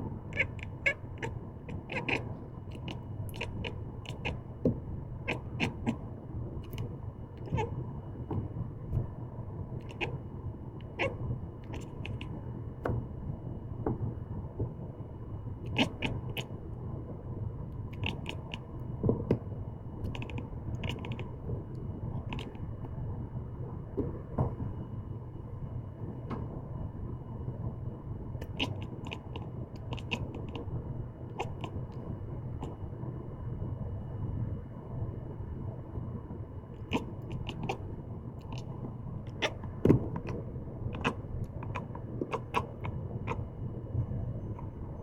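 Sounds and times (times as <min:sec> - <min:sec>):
cat chattering: 0:00.1 - 0:04.6, 0:05.2 - 0:08.3, 0:09.8 - 0:12.5, 0:15.6 - 0:16.6, 0:17.8 - 0:18.8, 0:20.0 - 0:22.8, 0:28.4 - 0:32.9, 0:36.7 - 0:45.0.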